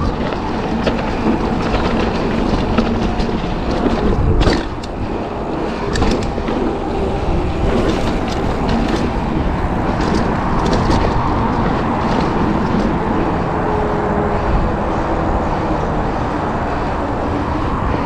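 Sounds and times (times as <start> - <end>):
bike frame rattling: 0.0 - 13.9
bike tyres on dirt and rock: 0.0 - 18.0
wind on microphone: 0.0 - 18.0.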